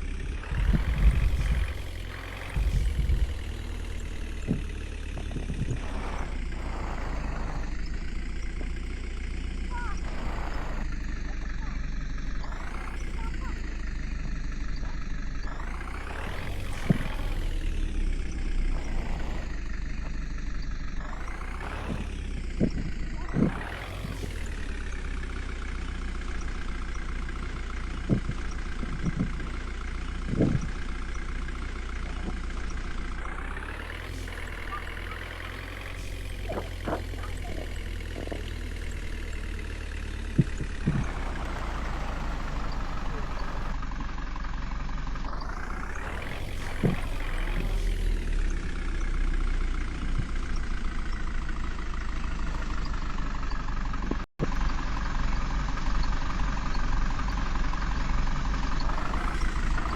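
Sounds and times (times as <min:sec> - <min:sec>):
vehicle knocks and clunks: 0:00.0 - 0:09.0, 0:09.6 - 0:24.1, 0:27.8 - 0:43.8
truck engine speeding up: 0:00.0 - 0:59.9.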